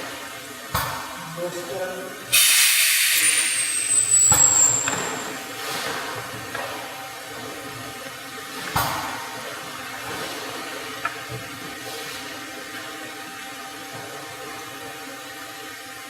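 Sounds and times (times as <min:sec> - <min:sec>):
loud burst of hiss: 0:02.3 - 0:05.4
welding machine hissing: 0:02.3 - 0:05.4.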